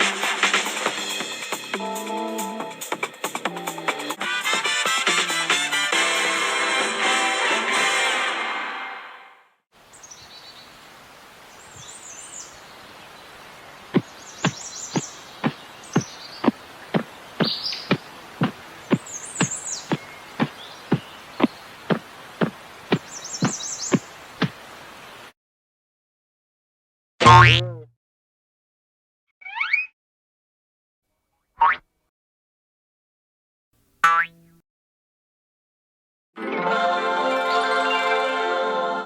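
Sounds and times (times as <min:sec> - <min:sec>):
birds chirping: 0:09.8 - 0:25.3
outdoor background noise: 0:09.8 - 0:25.3.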